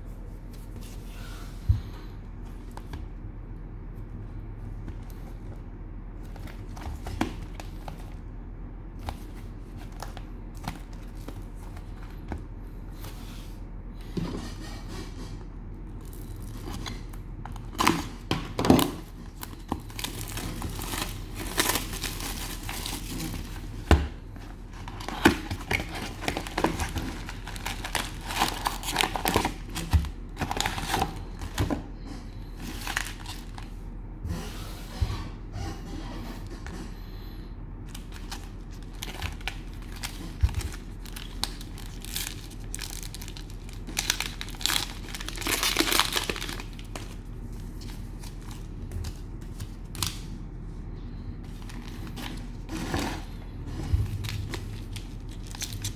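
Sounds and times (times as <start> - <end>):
cellophane crinkling and tearing: 15.9 - 33.8, 37.9 - 50.4, 51.4 - 55.9.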